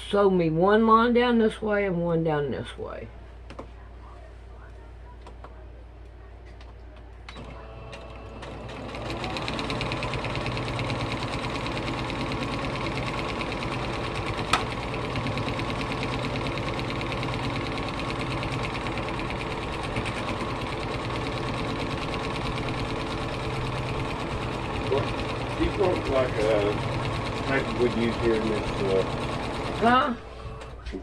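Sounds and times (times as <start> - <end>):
electric sewing machine stitching: 7.4 - 30.8.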